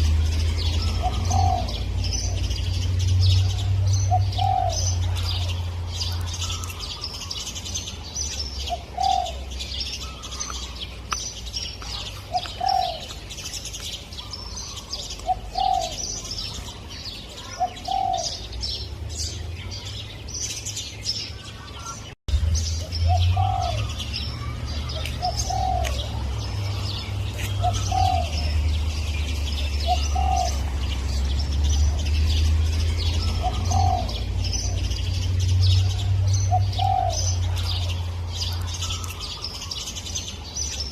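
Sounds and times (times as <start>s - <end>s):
small birds chirping: 0.0s - 40.9s
dove cooing: 0.6s - 2.5s, 3.3s - 7.4s, 8.6s - 10.8s, 11.9s - 13.2s, 14.3s - 16.7s, 17.4s - 18.5s, 23.1s - 28.6s, 29.5s - 31.1s, 33.1s - 35.0s, 35.8s - 38.0s.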